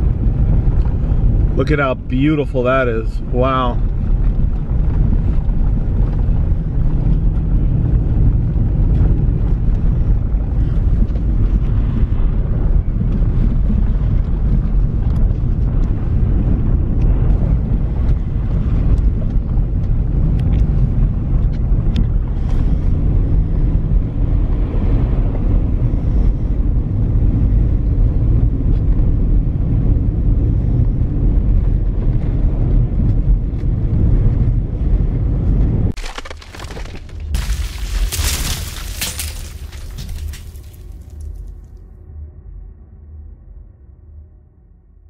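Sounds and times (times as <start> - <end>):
wind buffeting microphone: 0.0 - 36.0
vehicle road noise: 0.0 - 41.8.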